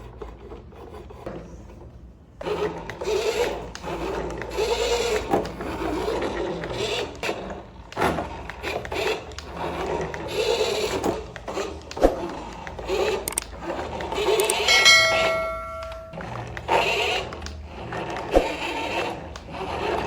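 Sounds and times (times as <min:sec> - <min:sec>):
toy motor and gears whirring: 0:02.5 - 0:14.9
sharp clicks: 0:13.3 - 0:13.5, 0:14.3 - 0:14.7.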